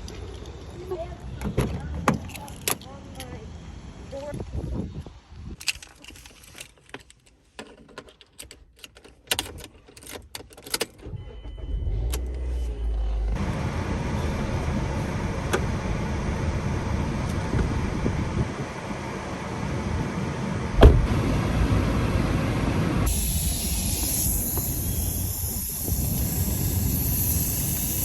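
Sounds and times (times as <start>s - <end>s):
keys jangling: 2.2s - 3.4s, 5.6s - 11.0s
car running hum: 11.1s - 28.0s.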